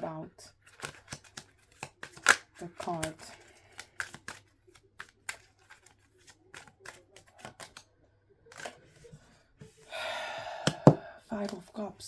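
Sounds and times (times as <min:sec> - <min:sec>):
cards clicking: 0:00.6 - 0:07.9, 0:08.5 - 0:09.8, 0:10.7 - 0:11.6.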